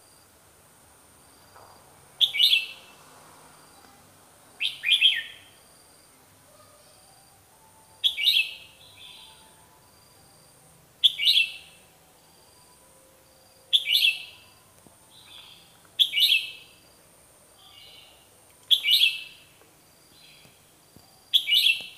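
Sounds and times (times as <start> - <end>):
bird whistling song: 2.2 - 2.8, 4.6 - 5.5, 8.0 - 9.4, 11.0 - 11.8, 13.7 - 14.5, 15.1 - 16.7, 18.7 - 19.4, 21.3 - 21.9.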